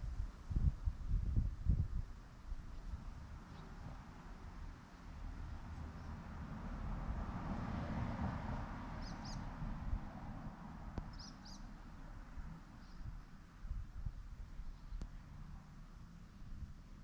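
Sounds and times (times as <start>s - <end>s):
rushing noise with low rumble: 0.0s - 17.0s
bird chirping: 9.0s - 9.5s, 11.0s - 11.8s
faint click: 15.0s - 15.2s.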